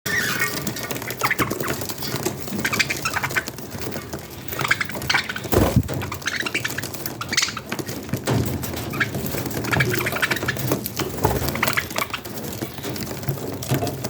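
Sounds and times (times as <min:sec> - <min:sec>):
dull thump: 0:05.5 - 0:06.2.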